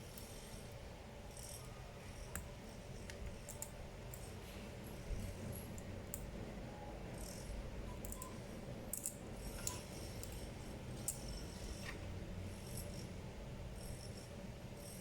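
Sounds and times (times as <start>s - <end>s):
small metal parts clicking: 3.0s - 4.3s, 8.0s - 8.3s, 8.9s - 11.8s.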